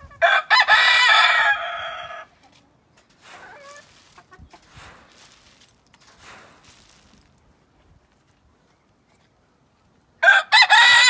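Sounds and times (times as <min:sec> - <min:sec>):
rooster crowing: 0:00.2 - 0:02.3, 0:10.2 - 0:11.0.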